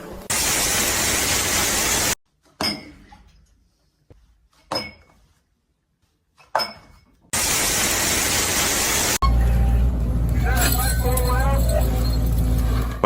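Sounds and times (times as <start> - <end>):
hard objects clinking: 10.3 - 13.0.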